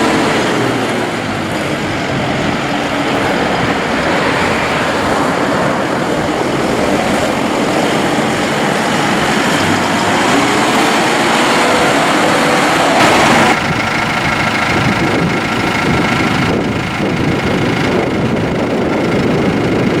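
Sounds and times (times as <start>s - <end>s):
tractor diesel engine running: 13.0s - 20.0s.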